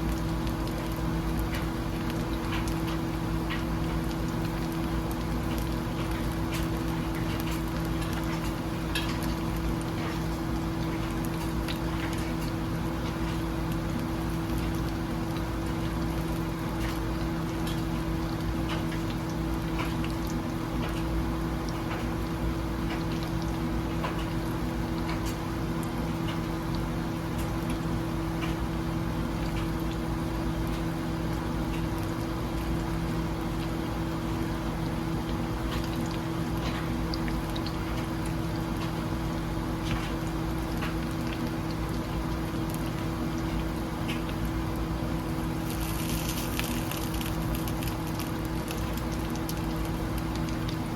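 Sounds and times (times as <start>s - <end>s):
food sizzling with pops: 35.0s - 50.9s.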